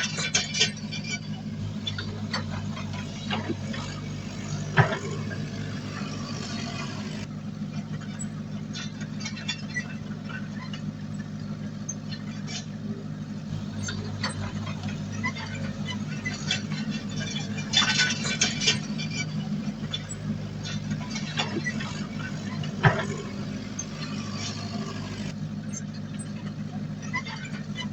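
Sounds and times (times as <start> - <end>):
metal clanks and knocks: 0.0 - 7.3, 13.5 - 25.8
diesel engine running: 0.0 - 27.9.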